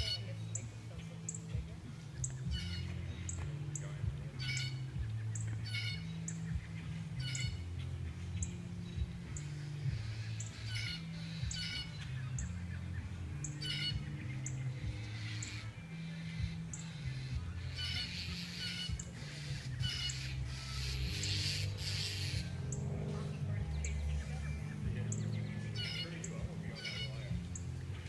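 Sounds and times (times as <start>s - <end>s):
birds squawking harshly: 0.0s - 28.0s
low hum: 19.0s - 28.0s.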